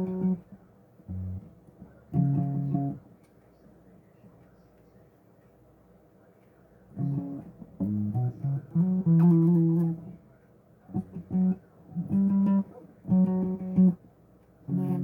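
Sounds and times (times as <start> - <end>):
bass guitar plucked notes: 0.0 - 0.4, 1.1 - 1.4, 2.2 - 3.0, 7.0 - 10.1, 11.0 - 14.0, 14.7 - 15.0.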